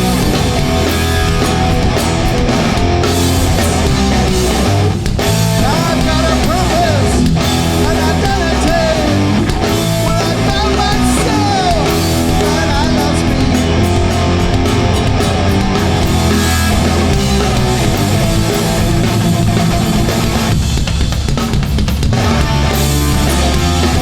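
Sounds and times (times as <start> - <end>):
live punk band playing: 0.0 - 24.0
gliding vocal or guitar lines: 3.6 - 20.3.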